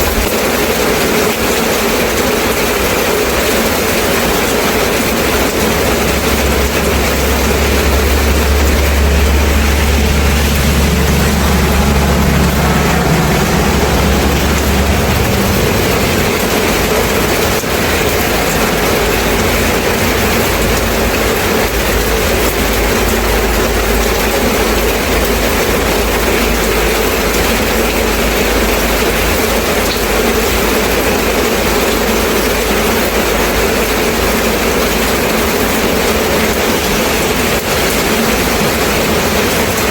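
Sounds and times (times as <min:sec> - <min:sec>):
steady rain falling: 0:00.0 - 0:39.9
low rumble: 0:03.3 - 0:29.5.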